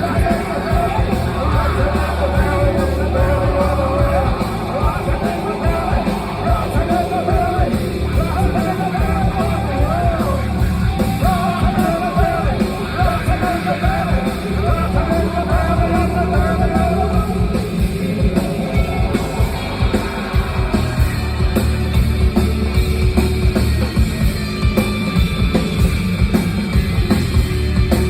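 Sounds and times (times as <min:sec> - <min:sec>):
person singing and shouting: 0:00.0 - 0:21.2
heavy rock band playing: 0:00.0 - 0:28.0.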